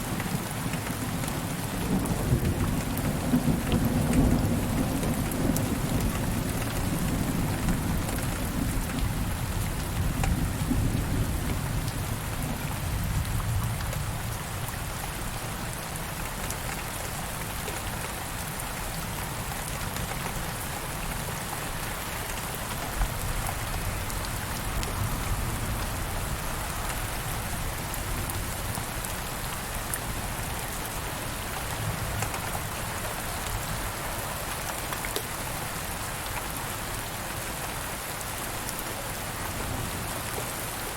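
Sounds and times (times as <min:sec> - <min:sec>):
steady rain falling: 0:00.0 - 0:40.9
low rumble of thunder: 0:01.8 - 0:15.1.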